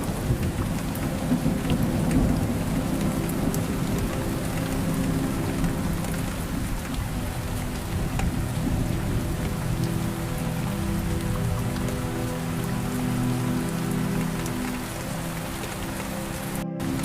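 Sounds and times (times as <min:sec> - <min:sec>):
raindrops ticking: 0:00.0 - 0:17.0
steady rain: 0:00.0 - 0:17.0.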